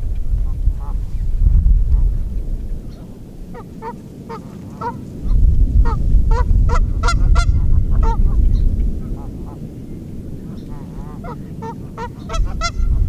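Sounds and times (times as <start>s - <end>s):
low rumble: 0.0s - 3.8s, 5.2s - 11.4s, 12.2s - 13.0s
geese honking: 2.9s - 5.0s, 5.8s - 8.4s, 9.0s - 9.7s, 10.4s - 13.0s.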